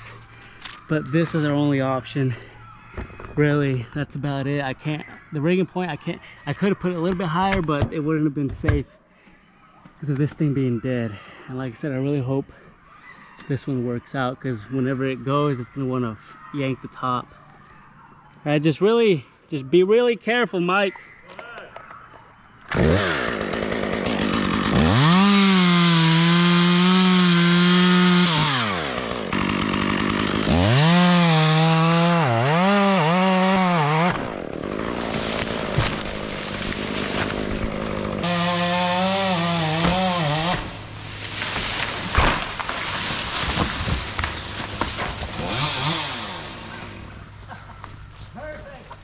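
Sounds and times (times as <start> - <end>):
chainsaw revving and cutting: 22.7 - 47.6
rough low engine noise: 34.2 - 38.6, 40.5 - 48.4.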